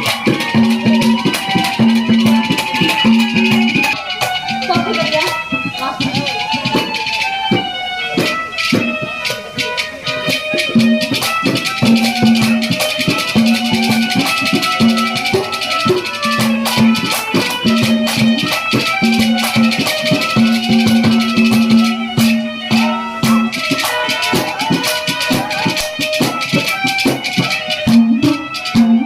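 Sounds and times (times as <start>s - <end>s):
held instrumental notes: 0.0s - 29.0s
rattling percussion: 0.0s - 29.0s.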